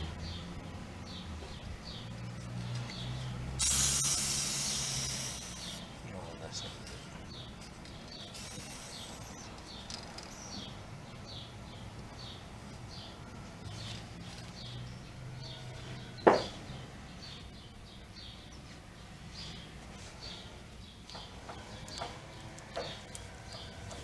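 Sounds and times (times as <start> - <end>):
small bird chirping: 0.2 - 15.6.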